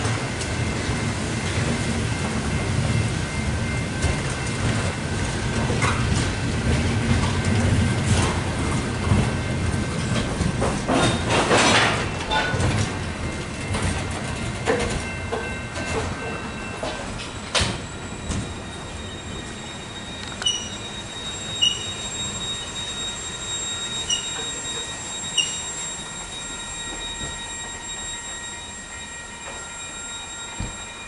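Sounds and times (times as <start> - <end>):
train wheels rumbling on rail: 0.0 - 31.0
wheels clacking over rail joints: 3.9 - 18.5.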